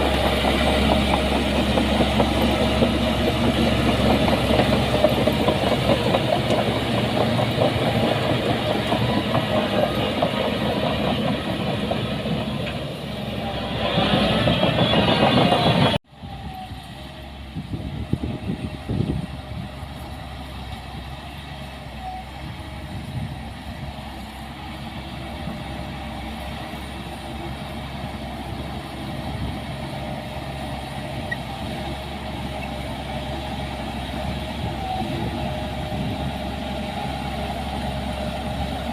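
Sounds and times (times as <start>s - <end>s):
diesel machinery engine revving: 0.0s - 16.0s
quieter engine running: 0.0s - 38.9s.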